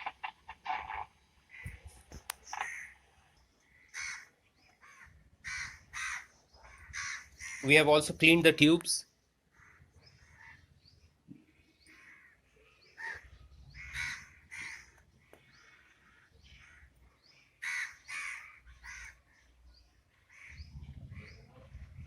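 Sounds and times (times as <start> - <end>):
crows cawing: 0.0 - 1.9, 2.5 - 3.0, 3.7 - 7.8, 9.5 - 10.7, 11.9 - 17.0, 17.6 - 19.4, 20.2 - 21.3.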